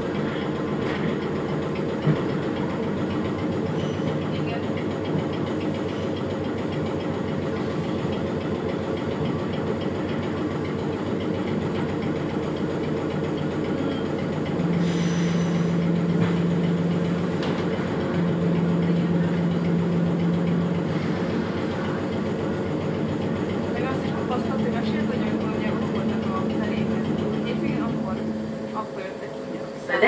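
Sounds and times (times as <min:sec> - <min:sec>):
rumble of train wheels and motors: 0:00.0 - 0:30.0
low steady hum: 0:14.5 - 0:30.0.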